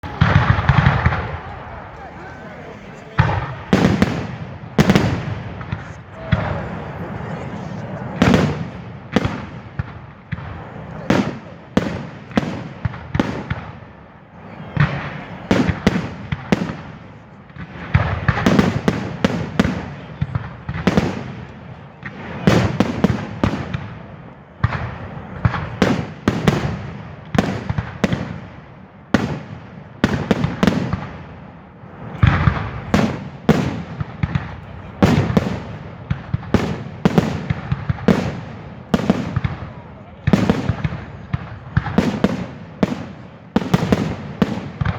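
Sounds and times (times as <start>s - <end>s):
fireworks bangs with rumbling echo: 0.0s - 44.9s.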